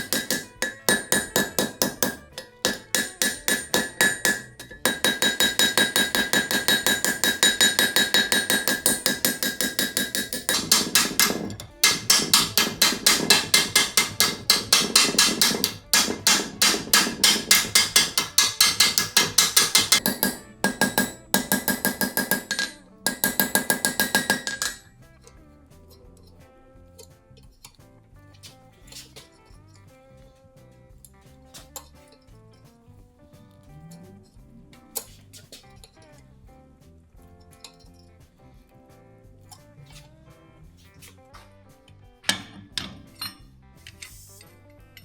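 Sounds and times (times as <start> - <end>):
hammer striking iron on anvil: 0.0 - 24.9, 42.2 - 43.4.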